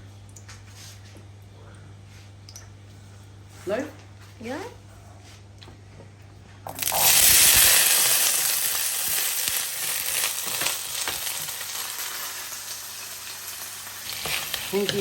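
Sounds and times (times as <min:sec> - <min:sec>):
food sizzling in hot oil: 0:06.7 - 0:15.0.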